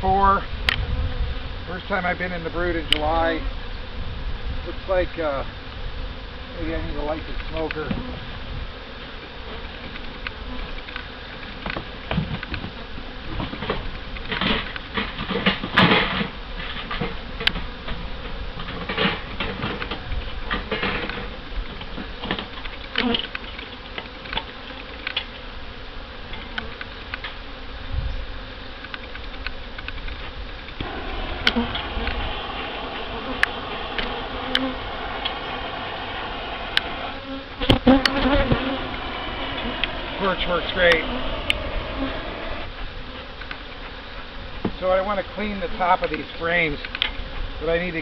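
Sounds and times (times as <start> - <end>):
bees buzzing: 0.0 - 48.0.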